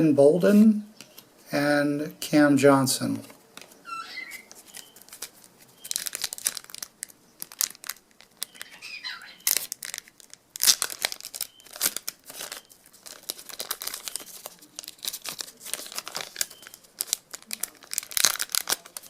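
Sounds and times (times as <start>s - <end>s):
plastic wrapper tearing and crinkling: 4.3s - 19.0s.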